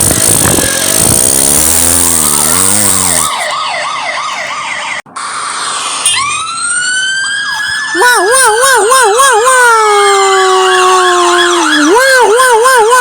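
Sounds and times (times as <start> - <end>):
cartoon wobbling tones: 0.0 - 3.5
siren winding up: 0.0 - 13.0
police siren wailing: 2.6 - 13.0.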